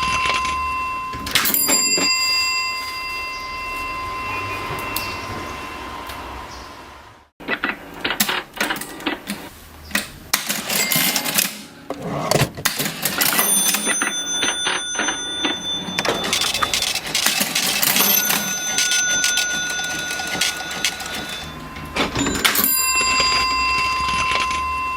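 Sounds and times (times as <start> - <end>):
high ringing tones: 0.0 - 5.9, 13.3 - 24.9
cash register key clicks: 10.4 - 14.0, 15.4 - 21.6.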